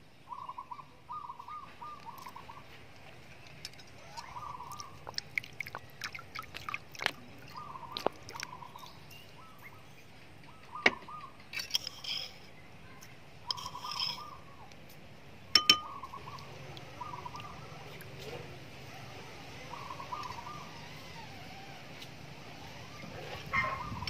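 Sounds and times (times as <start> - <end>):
higher bird twittering: 0.3 - 2.8, 4.0 - 14.7, 15.5 - 24.0
bird warbling: 4.0 - 5.2, 7.3 - 9.9, 10.5 - 12.4, 13.4 - 14.7, 15.6 - 21.3, 22.6 - 24.0
sharp clicks and clinks: 15.6 - 15.9.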